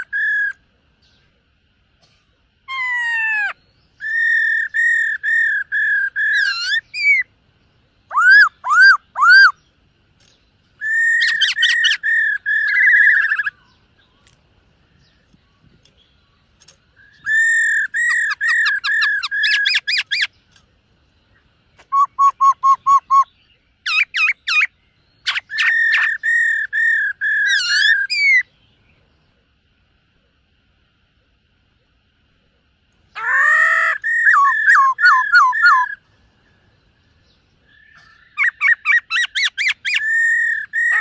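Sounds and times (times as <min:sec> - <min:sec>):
bird singing whistled phrases: 0:00.0 - 0:00.6, 0:02.7 - 0:07.3, 0:08.1 - 0:09.6, 0:10.8 - 0:13.8, 0:17.0 - 0:20.3, 0:21.8 - 0:28.5, 0:33.2 - 0:36.0, 0:37.7 - 0:41.0.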